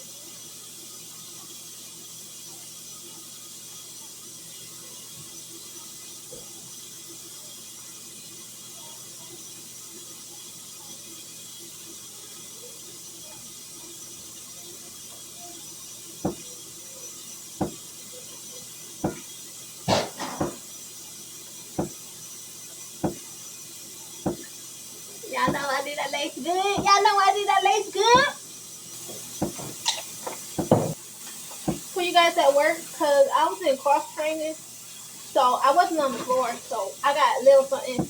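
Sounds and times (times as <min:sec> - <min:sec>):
sharp knocks: 0:19.0 - 0:19.2, 0:19.9 - 0:20.6, 0:23.0 - 0:23.2, 0:24.3 - 0:24.5, 0:29.4 - 0:29.8, 0:30.6 - 0:31.0.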